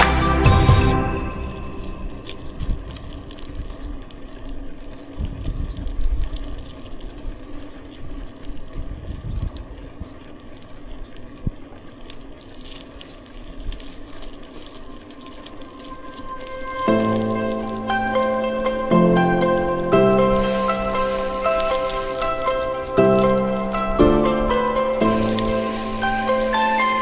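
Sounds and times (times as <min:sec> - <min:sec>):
road rumble: 0:00.0 - 0:05.2
wind gusts: 0:00.0 - 0:25.0.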